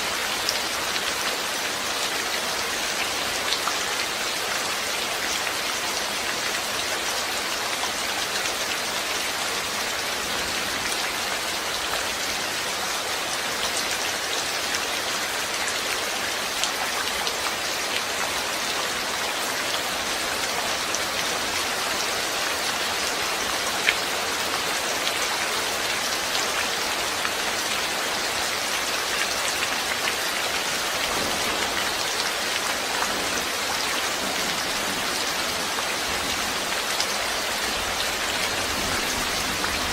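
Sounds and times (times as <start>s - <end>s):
rain hissing: 17.3s - 39.9s.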